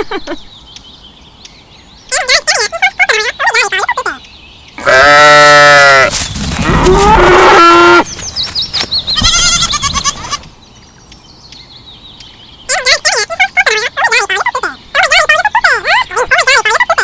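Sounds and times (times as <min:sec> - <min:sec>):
cow mooing: 0:04.8 - 0:08.0
wavering bleats: 0:04.8 - 0:08.1, 0:09.2 - 0:10.5.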